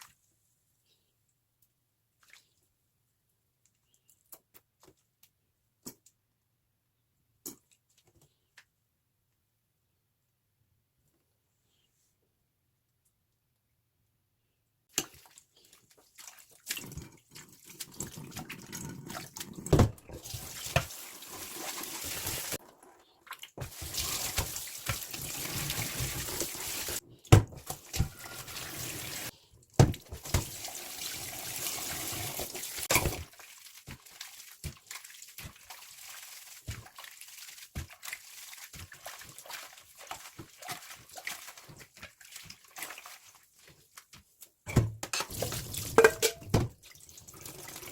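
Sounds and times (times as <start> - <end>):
kitchen tap running: 16.7 - 42.7, 45.2 - 47.9
water splashing: 23.2 - 27.0, 30.0 - 43.7.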